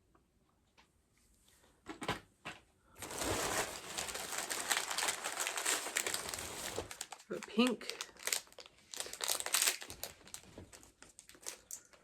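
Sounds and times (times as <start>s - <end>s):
plastic bag crinkling: 3.0s - 12.0s.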